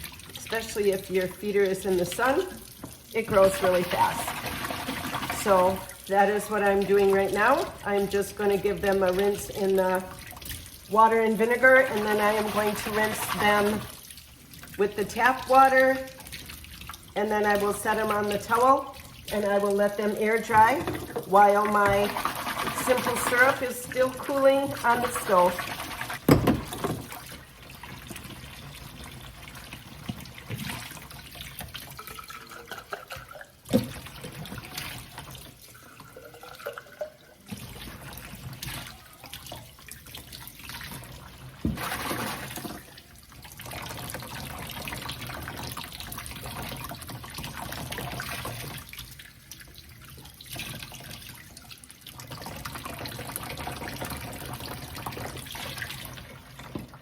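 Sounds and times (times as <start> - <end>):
small parts rinsed under water: 0.0 - 57.0
tap running into sink: 20.4 - 23.7, 26.1 - 27.4, 41.6 - 42.4.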